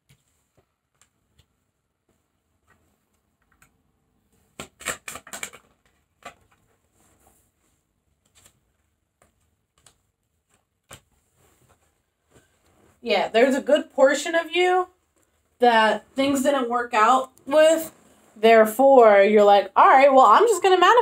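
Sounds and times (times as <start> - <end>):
cards flicking and snapping: 4.4 - 6.6.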